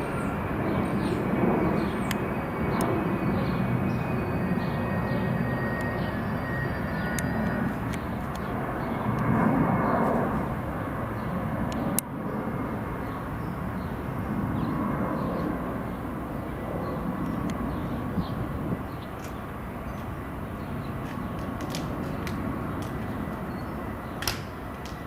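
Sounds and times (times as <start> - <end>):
airplane flying over: 0.0 - 25.0
sharp click: 24.2 - 25.0.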